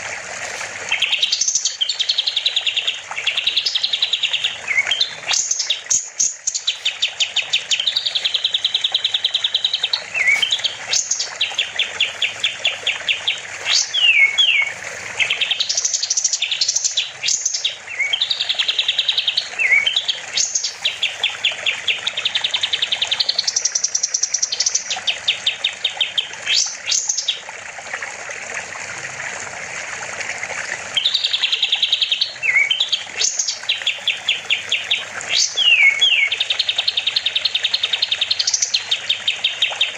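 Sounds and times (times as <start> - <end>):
songbird singing trills and whistles: 0.9 - 27.4, 31.0 - 39.9.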